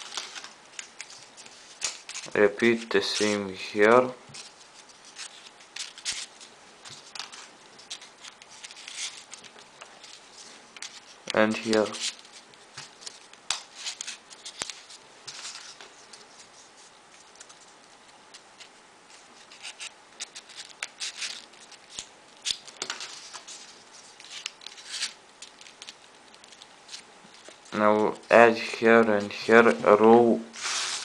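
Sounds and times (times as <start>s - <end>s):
folded paper rustling and clicking: 0.0s - 2.4s, 4.3s - 16.5s.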